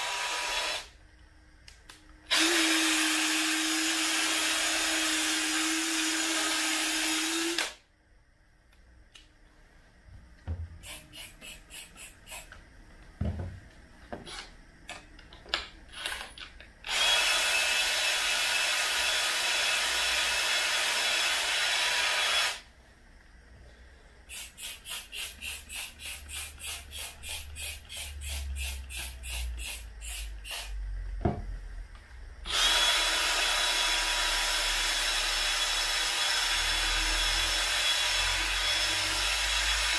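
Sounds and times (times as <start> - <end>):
rhythmic rubbing strokes: 10.8 - 12.5.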